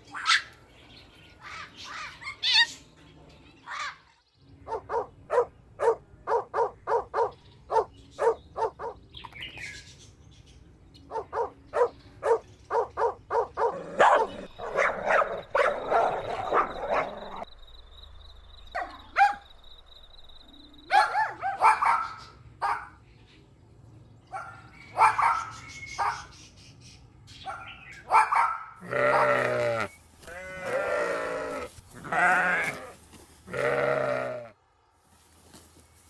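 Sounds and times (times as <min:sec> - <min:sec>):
dogs barking: 0:00.2 - 0:00.6, 0:04.6 - 0:09.1, 0:11.1 - 0:17.5, 0:18.7 - 0:19.5, 0:20.9 - 0:23.0, 0:24.3 - 0:26.4, 0:27.4 - 0:29.9.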